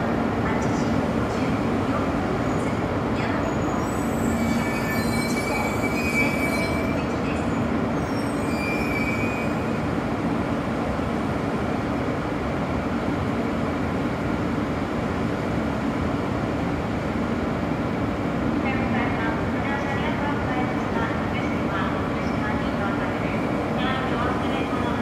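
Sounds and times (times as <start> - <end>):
train rumble and hum: 0.0 - 25.0
high squeals: 8.0 - 9.7.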